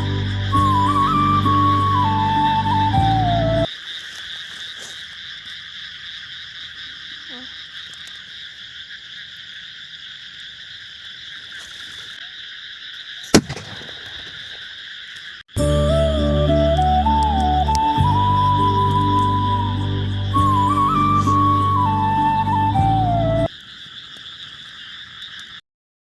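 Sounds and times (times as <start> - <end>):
chorus of calling animals: 4.5 - 15.3
sharp loud crack: 13.3 - 14.4.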